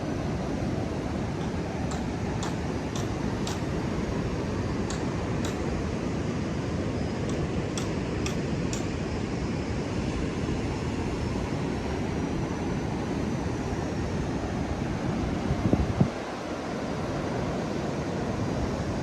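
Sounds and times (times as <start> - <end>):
ocean surf washing: 0.0 - 13.0
wind on microphone: 15.1 - 16.3.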